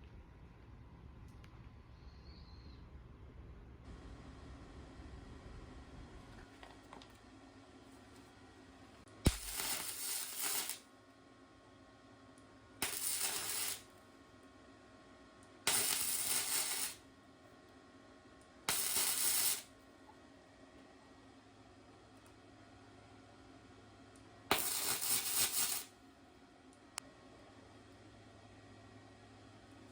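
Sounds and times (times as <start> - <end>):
short hissing sprays: 24.5 - 25.9.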